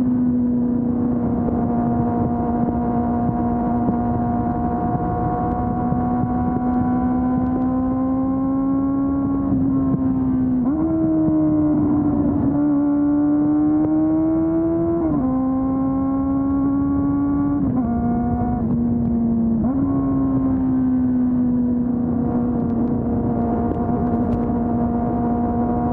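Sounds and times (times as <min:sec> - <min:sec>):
motorcycle engine running: 0:00.0 - 0:25.9.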